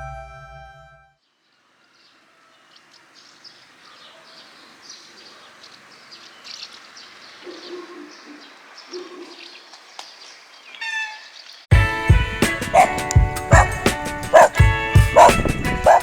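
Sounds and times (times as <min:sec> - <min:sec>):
music: 0:00.0 - 0:01.2, 0:11.7 - 0:16.0
small birds chirping: 0:01.2 - 0:11.7, 0:12.8 - 0:16.0
low repeated animal call: 0:07.4 - 0:09.5, 0:12.8 - 0:13.8, 0:14.4 - 0:14.6.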